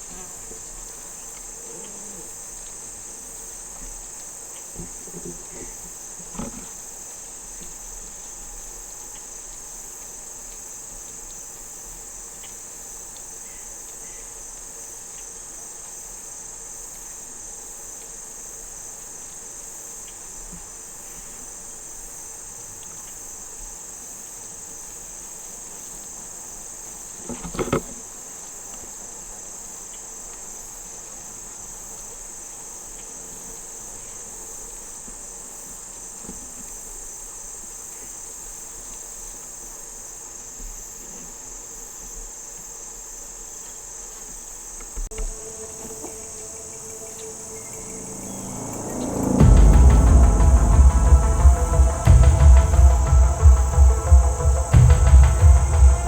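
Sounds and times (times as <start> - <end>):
crickets and insects chirring: 45.1 - 56.0.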